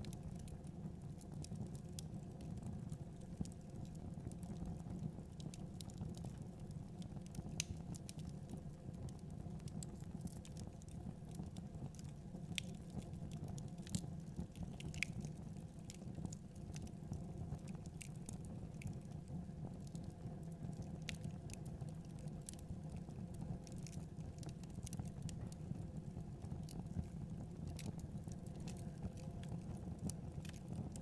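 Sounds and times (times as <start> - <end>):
low rumble of flames: 0.0 - 31.0
wood fire popping and snapping: 7.2 - 25.8, 26.4 - 31.0.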